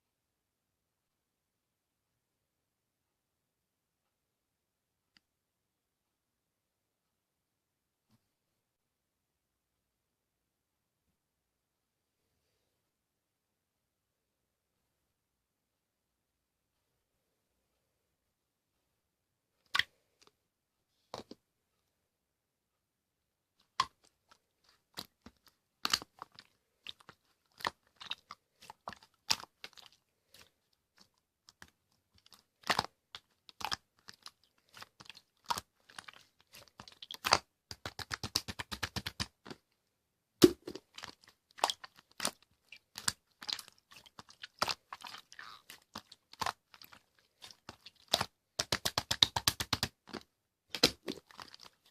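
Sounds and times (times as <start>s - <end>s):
slime clicking and popping: 25.0s - 30.0s, 31.5s - 39.6s, 40.4s - 51.8s.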